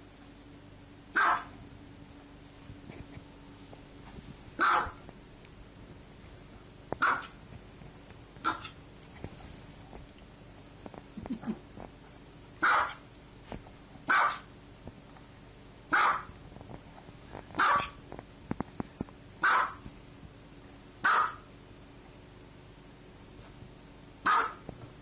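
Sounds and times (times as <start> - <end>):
dog barking: 1.2 - 1.6, 4.6 - 5.0, 7.0 - 7.4, 8.4 - 8.8, 12.6 - 13.0, 14.1 - 14.5, 15.9 - 16.3, 17.6 - 18.0, 19.4 - 19.8, 21.0 - 21.5, 24.2 - 24.7.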